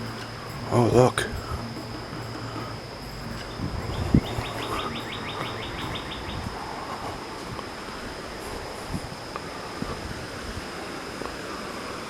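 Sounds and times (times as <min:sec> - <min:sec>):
bird trilling: 0:00.0 - 0:07.3
high-pitched insect drone: 0:00.0 - 0:12.0.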